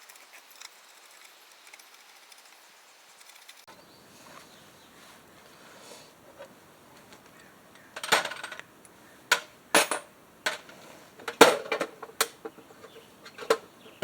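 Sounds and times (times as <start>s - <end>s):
metal tools clinking: 8.0s - 8.6s, 9.3s - 14.0s.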